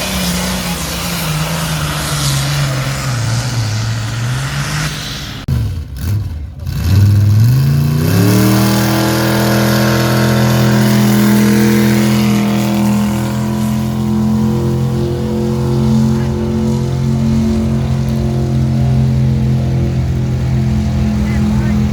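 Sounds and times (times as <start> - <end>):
vehicle engine revving high: 0.0 - 21.9.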